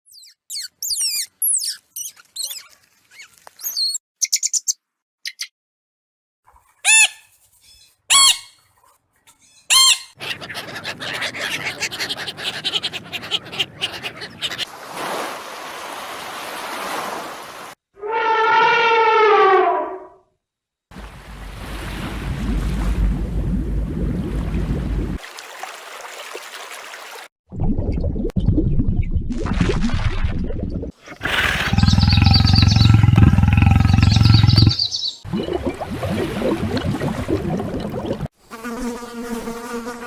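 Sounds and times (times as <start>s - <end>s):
loud animal calls: 9.7s - 14.7s, 31.2s - 35.0s
long pitched animal call: 18.0s - 20.2s, 31.2s - 34.9s
rough unpitched animal sound: 31.0s - 34.9s.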